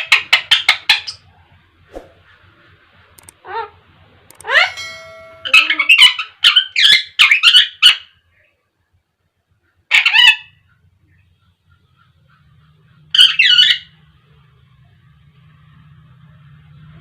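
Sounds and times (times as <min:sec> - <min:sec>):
parakeet squawking: 0:04.4 - 0:08.1, 0:09.9 - 0:10.7, 0:13.1 - 0:14.0.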